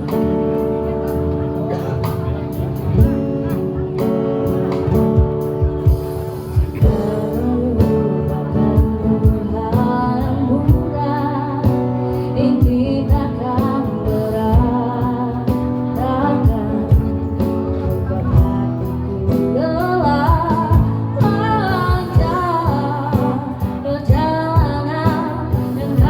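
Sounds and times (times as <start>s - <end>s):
low percussive beat: 0.0s - 10.0s
guitar: 0.0s - 26.0s
person singing: 6.8s - 17.4s.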